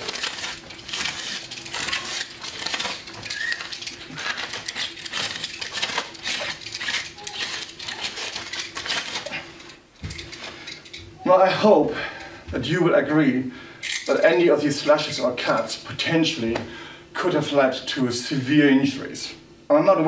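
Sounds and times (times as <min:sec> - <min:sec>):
knife ripping fabric: 0:00.0 - 0:09.6.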